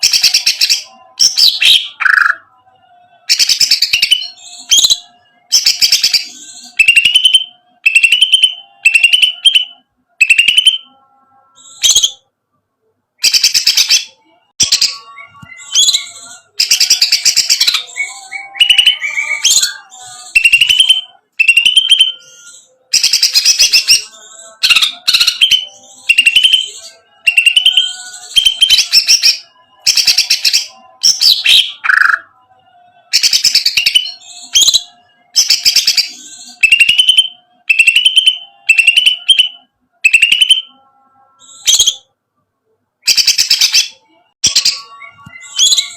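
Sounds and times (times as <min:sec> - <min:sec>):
bird singing rattling trills: 0:13.2 - 0:32.2, 0:33.1 - 0:42.0, 0:43.1 - 0:45.9.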